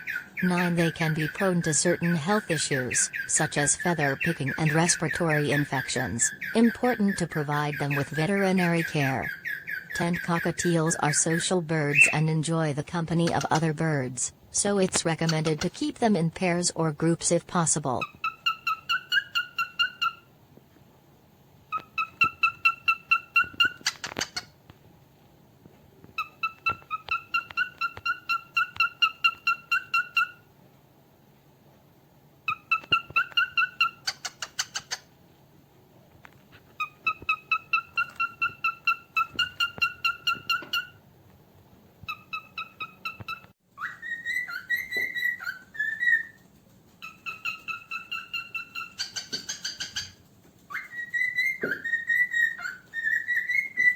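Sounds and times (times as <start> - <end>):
cockatiel whistling: 21.7 - 24.3, 32.5 - 34.7, 42.1 - 46.4, 50.7 - 53.9.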